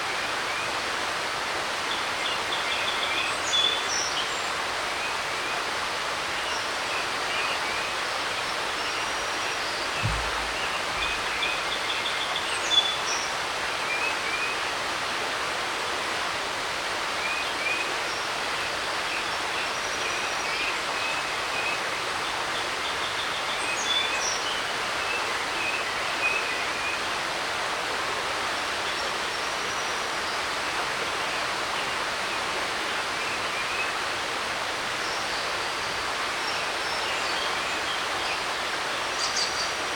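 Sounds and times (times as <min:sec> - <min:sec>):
creek rushing: 0:00.0 - 0:39.9
songbirds chirping: 0:01.7 - 0:14.8, 0:28.5 - 0:39.9
low thud: 0:10.0 - 0:11.6.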